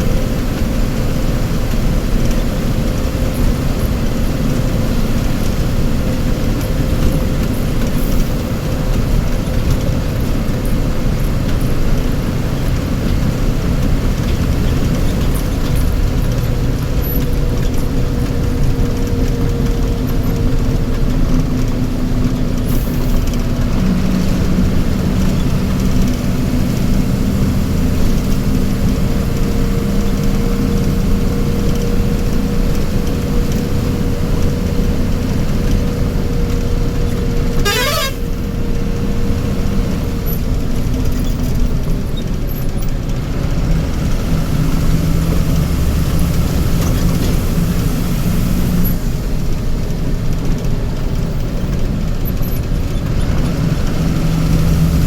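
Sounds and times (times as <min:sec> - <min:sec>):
vehicle engine running: 0:00.0 - 0:55.0
held horn tone: 0:37.5 - 0:38.6
horns honking: 0:37.5 - 0:38.6.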